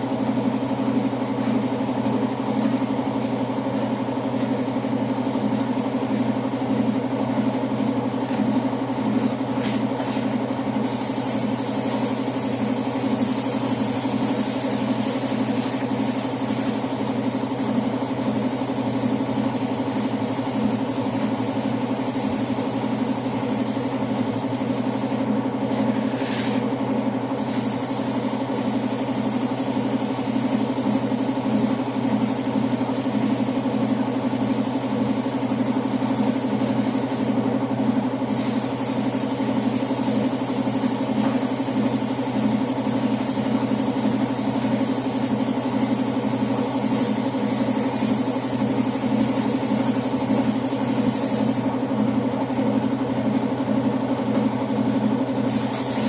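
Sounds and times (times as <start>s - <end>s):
air compressor running: 0.0s - 56.0s
spray gun hissing: 9.6s - 25.3s, 27.4s - 37.4s, 38.3s - 51.8s, 55.5s - 56.0s.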